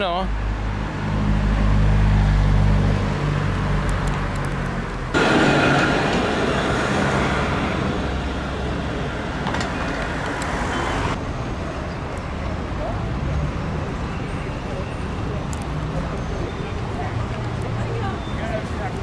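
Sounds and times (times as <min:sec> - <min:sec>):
vehicle engine hum: 0:00.3 - 0:19.0
loud rushing noise: 0:05.1 - 0:11.2.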